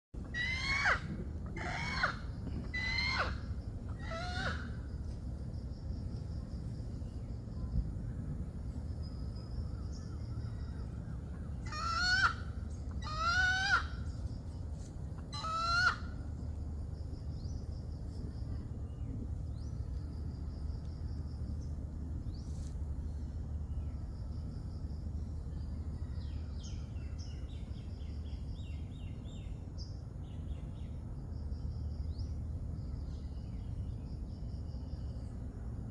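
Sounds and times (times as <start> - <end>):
chicken squawking: 0.2 - 4.7, 11.6 - 14.0, 15.2 - 16.1
low background noise: 0.2 - 35.9.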